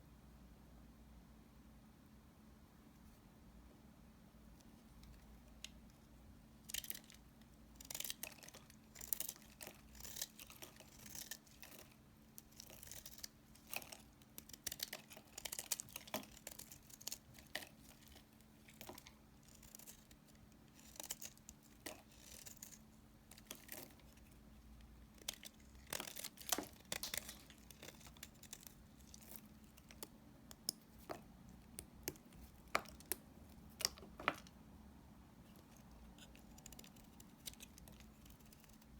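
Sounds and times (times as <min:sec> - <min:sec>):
faint steady hum: 0:00.0 - 0:38.9
knife cutting dry soap: 0:07.8 - 0:24.3.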